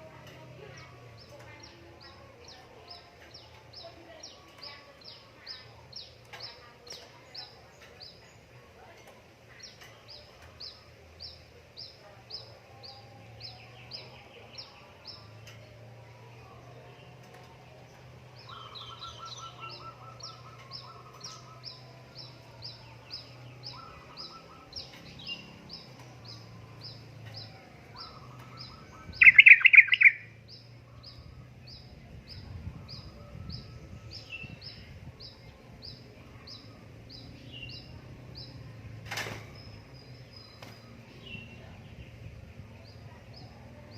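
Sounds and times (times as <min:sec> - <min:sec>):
bird chattering: 0:27.3 - 0:30.6
bird short high chirps: 0:29.1 - 0:30.3.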